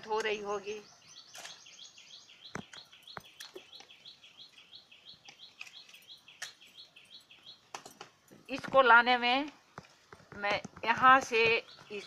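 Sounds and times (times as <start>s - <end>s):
bird chirping: 0.0s - 9.1s, 10.8s - 12.0s
faint clicks and taps: 7.7s - 12.0s.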